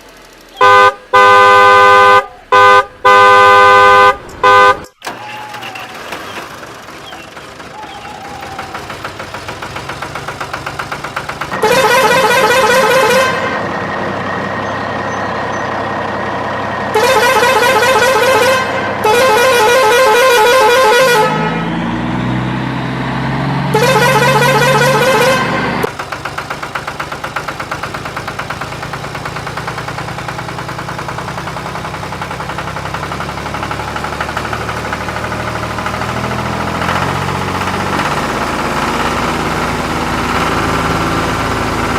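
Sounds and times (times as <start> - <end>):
engine running: 0.0 - 41.9
warbling vehicle horn blasts: 0.6 - 5.1, 11.5 - 14.0, 16.8 - 22.0, 23.6 - 25.9.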